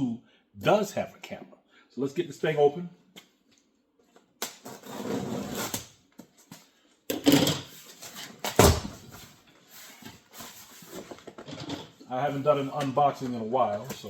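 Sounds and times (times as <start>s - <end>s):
cardboard scraping and rustling: 7.7s - 12.6s.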